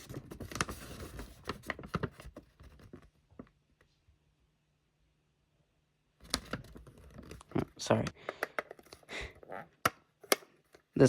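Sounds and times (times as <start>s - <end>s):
plastic parts clicking and tapping: 6.2s - 9.1s.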